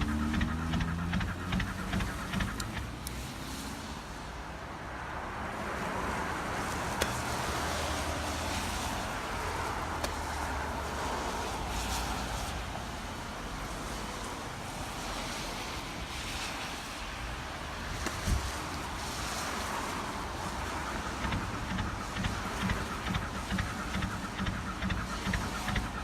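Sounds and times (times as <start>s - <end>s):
diesel engine running: 0.0s - 3.3s, 20.1s - 26.0s.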